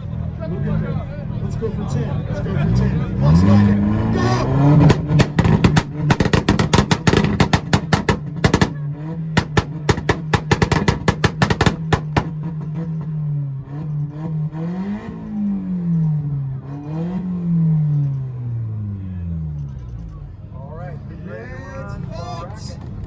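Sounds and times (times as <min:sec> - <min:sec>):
engine revving: 0:00.0 - 0:20.2
car engine on rev limiter: 0:00.0 - 0:20.6
exhaust pops and bangs: 0:03.4 - 0:14.0.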